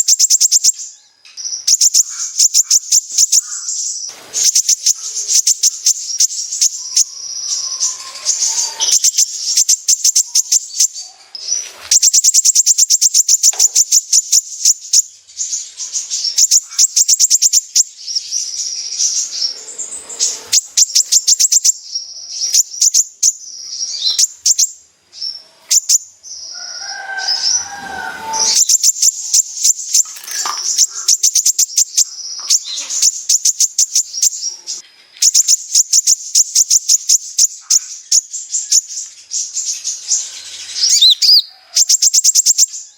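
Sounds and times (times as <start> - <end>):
sunbird singing high chips: 0.0 - 26.6, 27.2 - 42.9.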